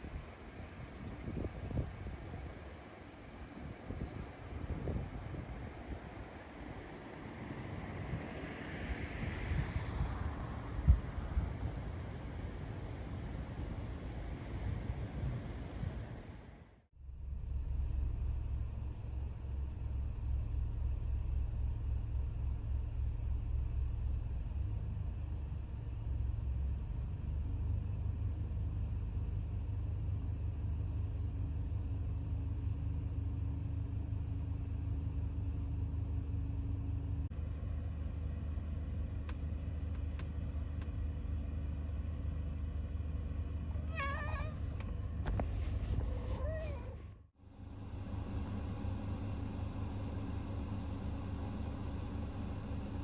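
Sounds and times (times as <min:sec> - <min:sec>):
van engine rumbling: 0:00.0 - 0:53.0
light ticks: 0:39.2 - 0:41.0.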